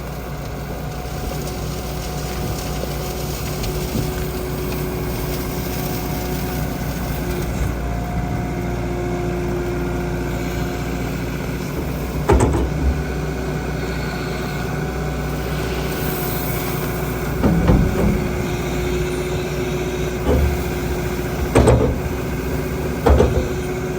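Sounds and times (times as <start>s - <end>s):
skid steer engine running: 0.0s - 23.9s
loud clunks: 11.6s - 13.4s, 16.2s - 23.9s.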